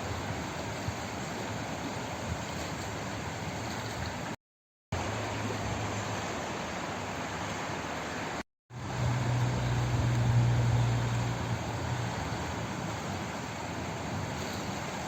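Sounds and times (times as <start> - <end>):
flowing water rushing: 0.0 - 15.0
low rumble: 8.8 - 12.5.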